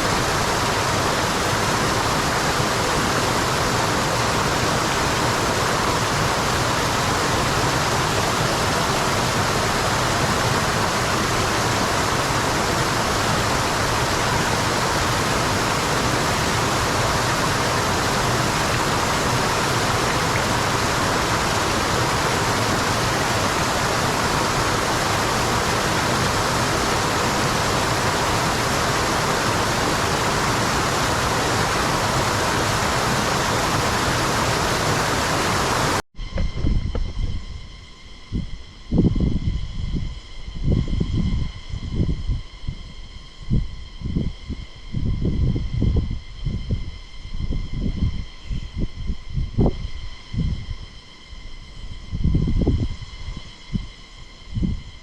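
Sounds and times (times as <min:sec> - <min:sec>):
waterfall roaring: 0:00.0 - 0:36.0.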